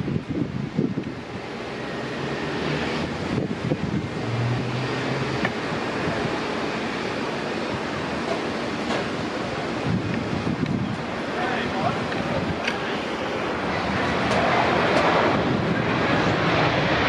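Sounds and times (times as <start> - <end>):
jet airliner engines roaring: 0.0 - 17.0
wind buffeting microphone: 0.0 - 17.0.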